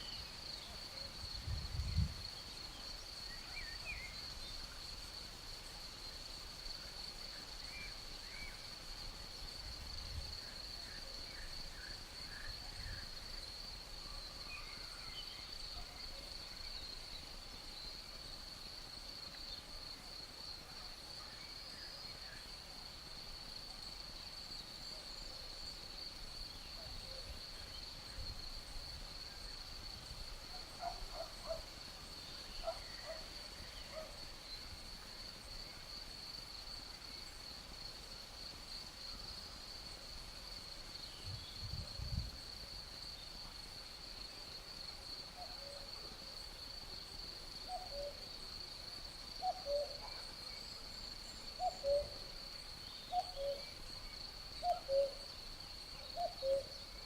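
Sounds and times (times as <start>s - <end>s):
insect chirring: 46.6s - 57.0s.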